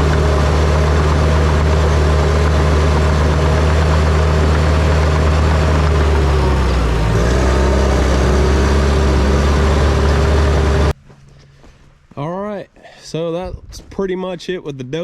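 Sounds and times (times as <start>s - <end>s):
diesel engine droning: 0.0s - 11.7s.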